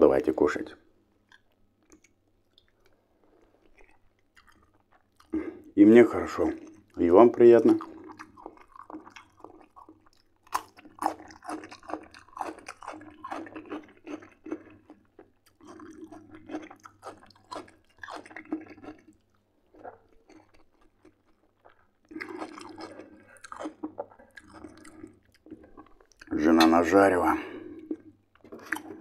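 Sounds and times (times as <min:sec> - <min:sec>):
crunchy chewing of cucumber: 0:01.3 - 0:29.0.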